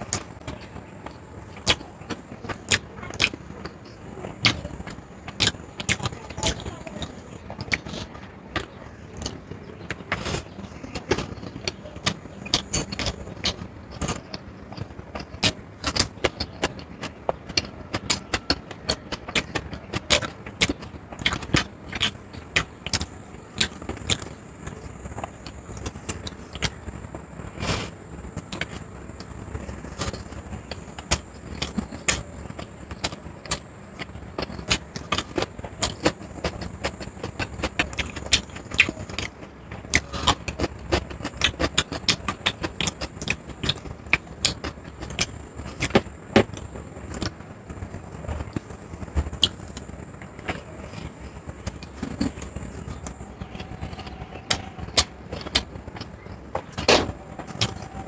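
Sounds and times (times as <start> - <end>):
chewing and mouth smacks: 39.9 - 47.8.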